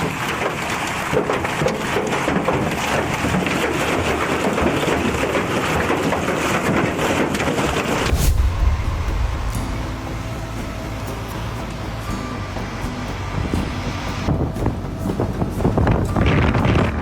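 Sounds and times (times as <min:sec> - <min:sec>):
heavy hail pelting: 0:00.0 - 0:17.0
deep low rumble: 0:08.0 - 0:16.8.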